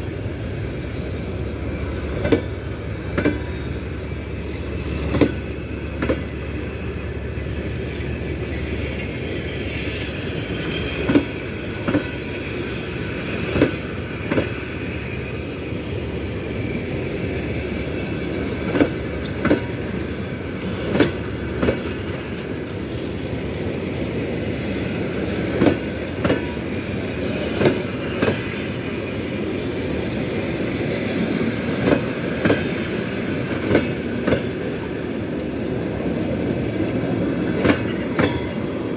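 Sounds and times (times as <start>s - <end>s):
train rolling rumble: 0.0s - 38.9s.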